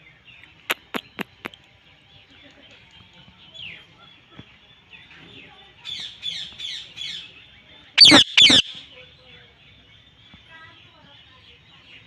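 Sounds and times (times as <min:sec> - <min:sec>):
parrot chirping: 0:08.0 - 0:08.7
parrot screeching: 0:08.0 - 0:08.7.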